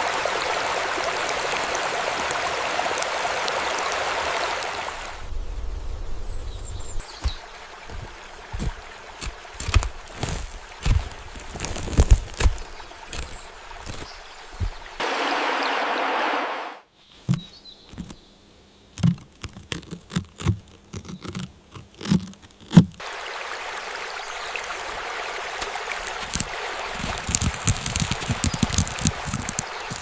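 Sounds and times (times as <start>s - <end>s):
running water: 0.0s - 5.3s, 6.6s - 16.8s, 23.0s - 30.0s.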